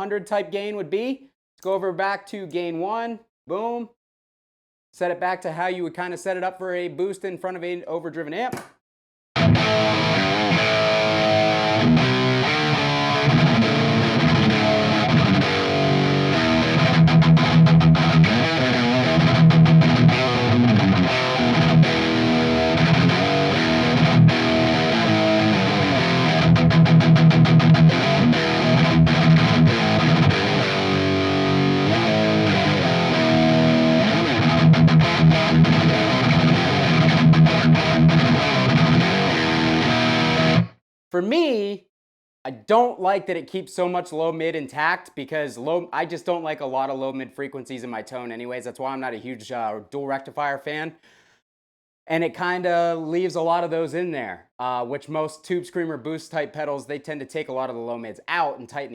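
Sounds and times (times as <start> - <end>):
distorted electric guitar riffs: 9.4 - 40.8.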